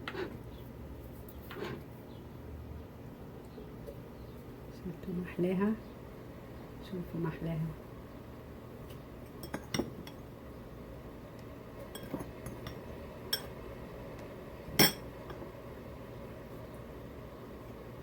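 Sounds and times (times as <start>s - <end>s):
tableware clinking: 9.4s - 10.2s, 11.9s - 13.5s, 14.8s - 15.4s.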